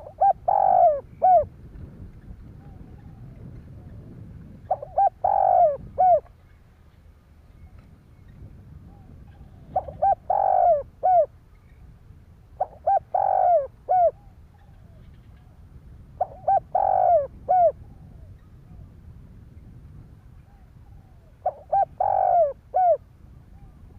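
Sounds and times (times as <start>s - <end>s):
dove cooing: 0.0s - 1.5s, 4.7s - 6.3s, 9.0s - 11.3s, 12.6s - 15.5s, 16.2s - 18.1s, 20.5s - 23.0s.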